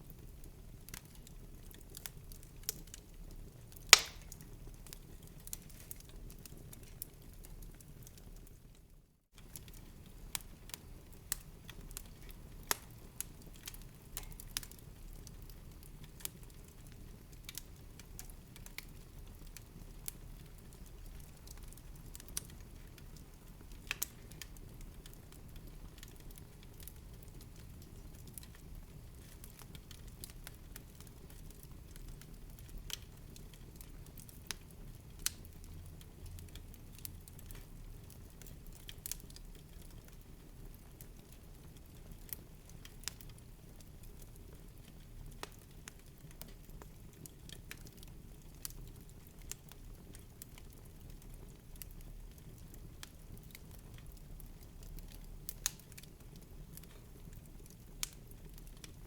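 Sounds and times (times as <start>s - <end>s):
low rumble of burning fire: 0.0s - 59.0s
wood fire crackling: 0.0s - 59.0s.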